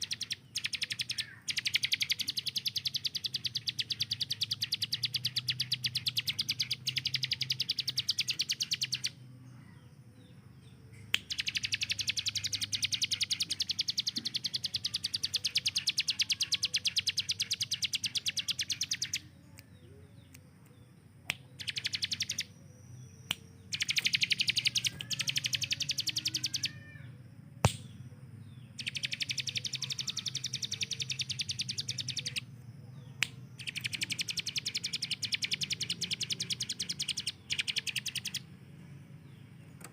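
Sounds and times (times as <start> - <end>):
bird singing fast high trills: 0.0 - 9.2, 11.2 - 19.9, 21.5 - 32.5, 33.1 - 38.6
soft bird chirps: 0.0 - 39.9
sharp click: 27.6 - 28.0.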